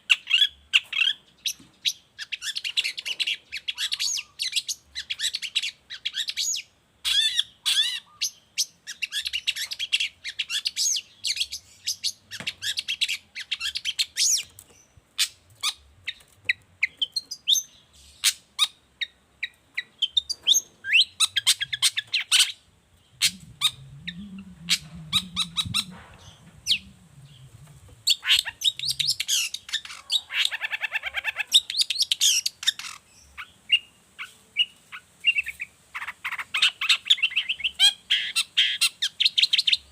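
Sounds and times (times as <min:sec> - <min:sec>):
shrike singing: 0:20.0 - 0:30.3
low sound: 0:23.0 - 0:28.2.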